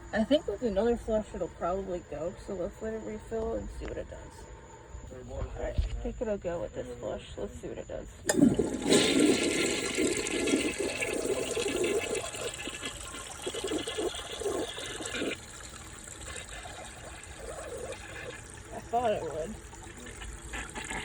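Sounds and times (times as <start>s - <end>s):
toilet flushing: 8.2s - 21.0s
toilet tank refilling hiss: 8.2s - 21.0s.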